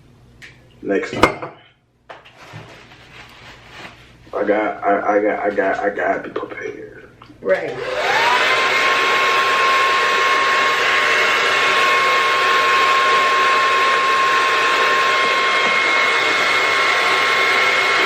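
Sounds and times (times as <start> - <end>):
hair dryer running: 7.6 - 18.0.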